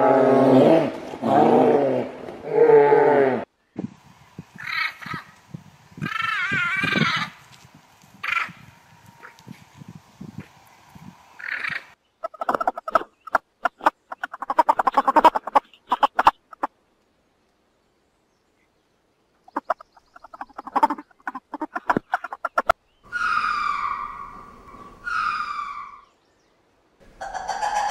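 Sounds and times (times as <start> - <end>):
fowl calling in pulsed notes: 19.5 - 26.1, 27.1 - 27.9
higher falling bird call: 19.5 - 26.2.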